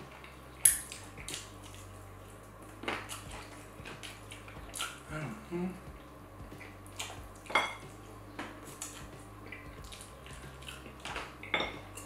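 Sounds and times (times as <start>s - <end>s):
close-miked eating: 0.0s - 12.0s
dishes clinking: 7.5s - 8.6s, 11.0s - 12.0s.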